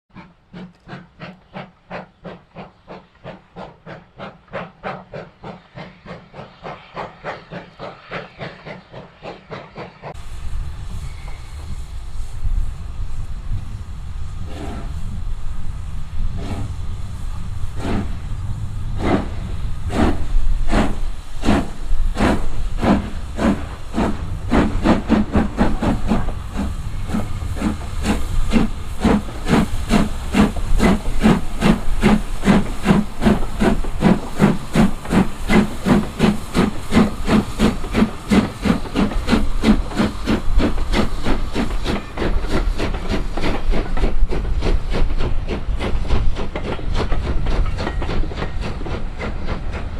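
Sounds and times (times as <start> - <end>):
steam locomotive chuffing: 0.1 - 49.9.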